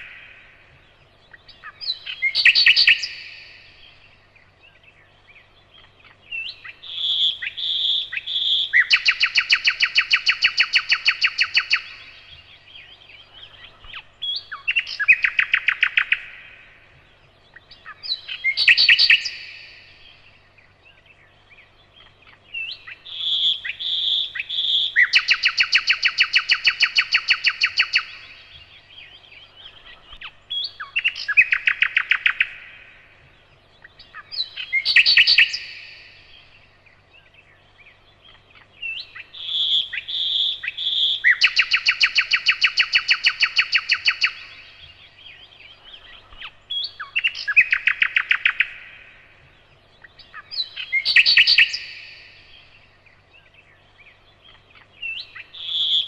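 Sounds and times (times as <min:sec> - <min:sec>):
nightingale singing: 0:00.0 - 0:56.0.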